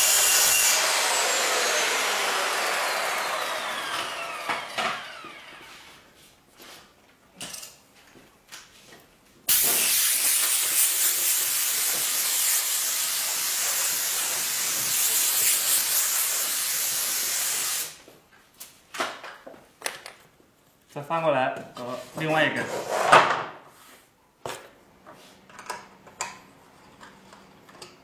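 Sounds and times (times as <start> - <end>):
track saw cutting: 0.0 - 5.9.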